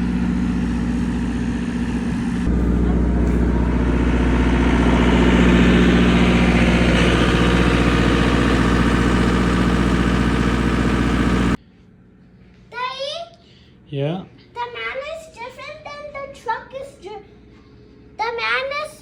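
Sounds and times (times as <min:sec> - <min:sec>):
truck engine idling: 0:00.0 - 0:11.6.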